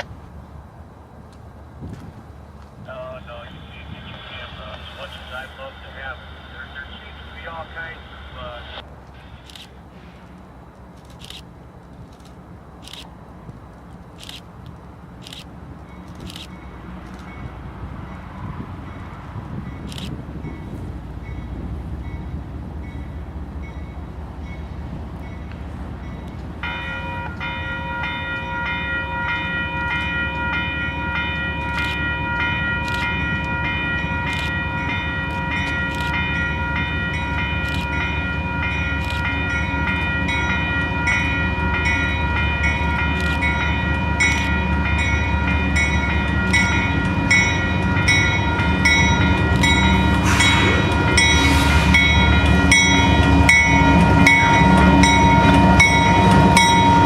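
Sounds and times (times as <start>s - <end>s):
locomotive rumble: 0.0s - 57.0s
train wheel clicks: 29.4s - 42.0s, 42.6s - 56.9s.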